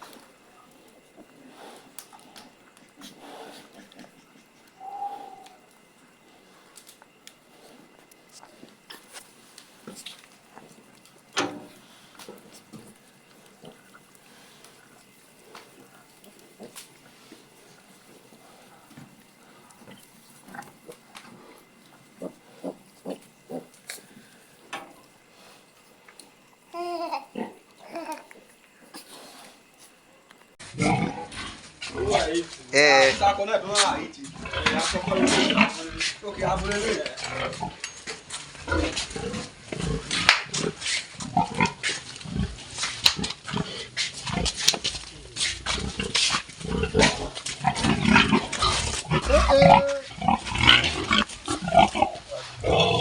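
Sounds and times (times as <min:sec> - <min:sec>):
pigs grunting: 0:00.0 - 0:29.8, 0:30.6 - 0:53.0
pigs squealing: 0:22.1 - 0:24.1, 0:45.4 - 0:53.0.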